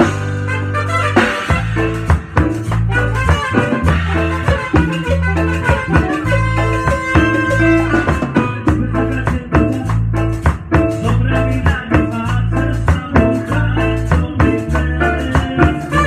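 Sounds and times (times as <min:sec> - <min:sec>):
melody line: 0:00.0 - 0:10.4
bass notes: 0:00.0 - 0:16.0
drum beat: 0:00.0 - 0:16.0
live band playing salsa: 0:00.0 - 0:16.0.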